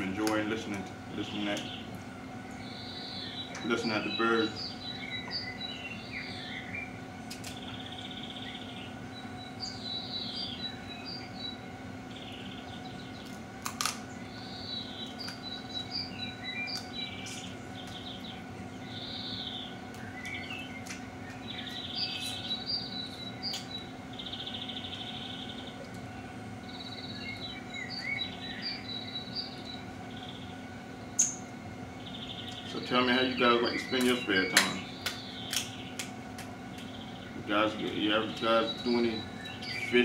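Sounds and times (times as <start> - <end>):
songbirds chirping and singing: 0.0 - 40.0
steady low hum: 0.0 - 40.0
sharp clicks: 33.9 - 37.0.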